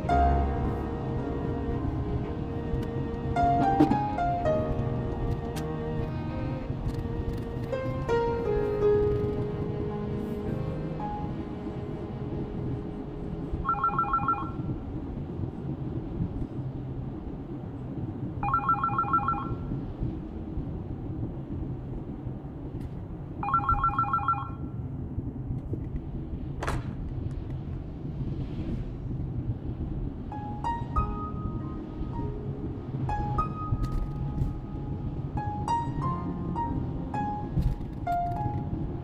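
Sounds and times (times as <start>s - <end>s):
low rumble: 0.0s - 39.0s
telephone ringing: 13.6s - 14.6s, 18.4s - 19.6s, 23.4s - 24.6s.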